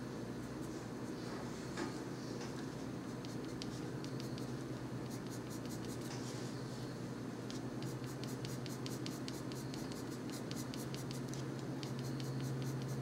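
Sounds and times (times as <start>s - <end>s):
steady low hum: 0.0s - 13.0s
colored pencil scratching on paper: 3.1s - 6.3s, 7.5s - 13.0s.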